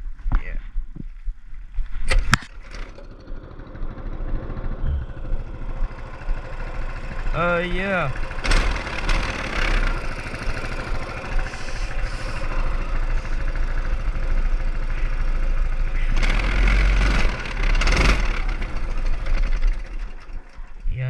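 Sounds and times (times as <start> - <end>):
small engine running: 2.5 - 20.9.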